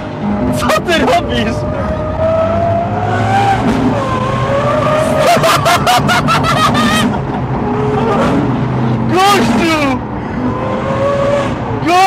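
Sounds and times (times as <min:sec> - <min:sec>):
car engine from inside cabin: 0:00.0 - 0:12.0
men laughing loudly: 0:05.0 - 0:08.5.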